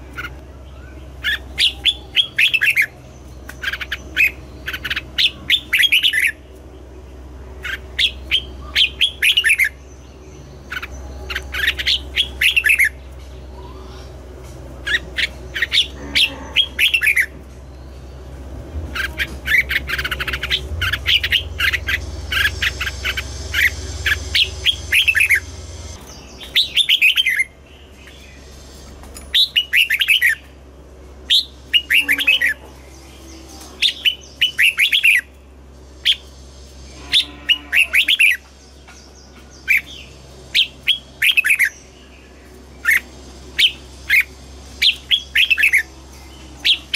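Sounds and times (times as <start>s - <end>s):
bird singing whistled notes: 7.6s - 14.2s, 18.9s - 30.5s, 31.3s - 35.3s, 36.0s - 46.9s.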